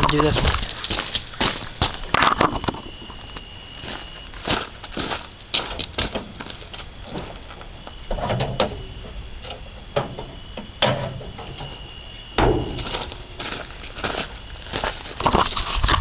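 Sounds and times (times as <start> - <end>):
metal truck hood clunks and knocks: 9.9 - 11.7, 12.4 - 12.9.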